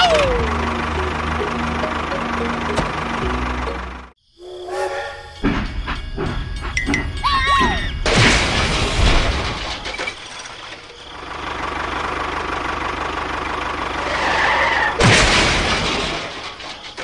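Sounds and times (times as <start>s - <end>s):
small engine idling: 0.0s - 4.2s, 11.0s - 15.0s.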